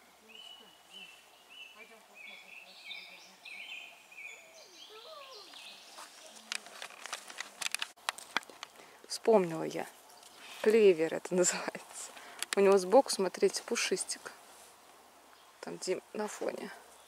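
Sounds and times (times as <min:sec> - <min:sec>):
sharp clicks and rustles: 0:05.5 - 0:08.8, 0:11.7 - 0:12.8.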